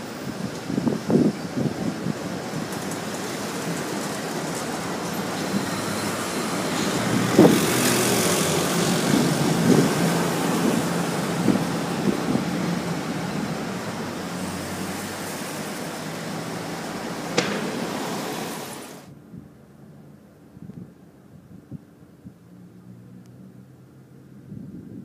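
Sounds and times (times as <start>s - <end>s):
rain: 0.0s - 19.1s
wind: 0.0s - 25.0s
thunder rumbling: 0.7s - 19.0s.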